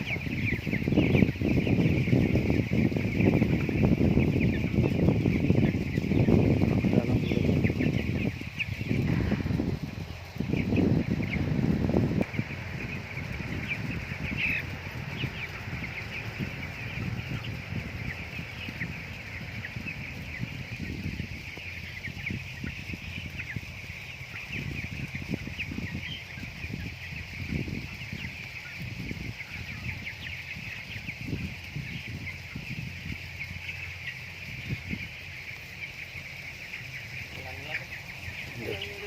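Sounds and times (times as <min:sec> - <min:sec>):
chickens peeping: 0:00.0 - 0:39.0.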